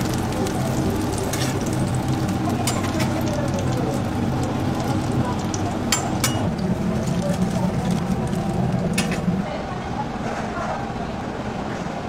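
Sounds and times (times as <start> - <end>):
patties sizzling on griddle: 0.0 - 9.5.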